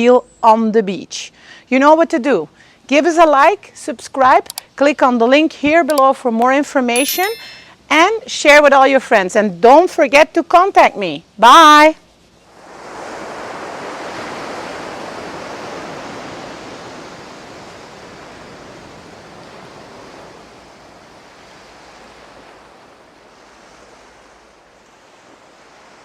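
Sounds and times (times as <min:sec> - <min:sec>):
ocean surf washing onto beach: 0:12.5 - 0:26.0.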